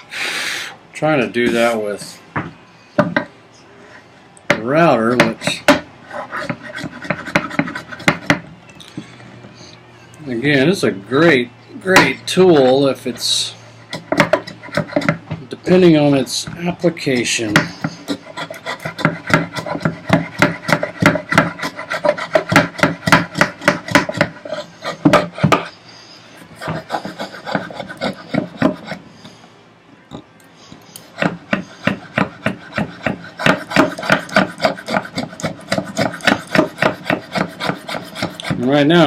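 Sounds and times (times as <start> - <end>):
hand plane scraping wood: 6.2 - 8.2, 13.9 - 15.2, 17.1 - 25.7, 26.5 - 29.0, 31.1 - 39.0.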